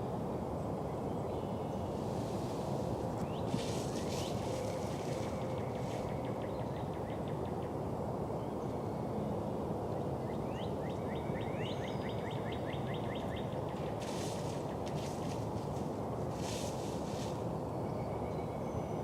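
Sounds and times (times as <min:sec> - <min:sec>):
low outdoor rumble: 0:01.6 - 0:07.3, 0:13.5 - 0:17.6.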